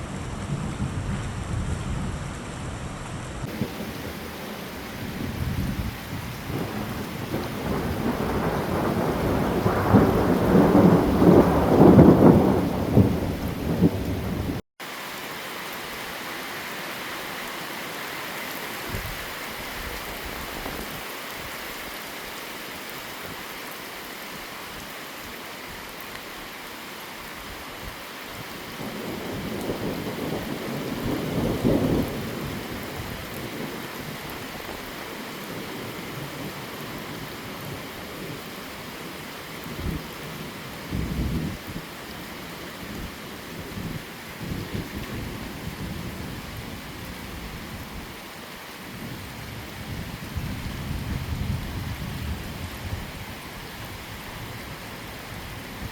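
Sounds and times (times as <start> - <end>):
heavy rain: 0.0 - 55.9
thunder rumbling: 0.2 - 14.6, 28.8 - 34.2, 39.6 - 41.9, 49.0 - 53.4.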